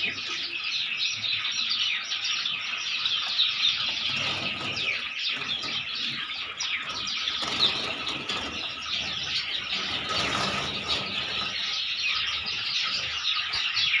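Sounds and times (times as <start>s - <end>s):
flock of sparrows chirping: 0.0s - 14.0s.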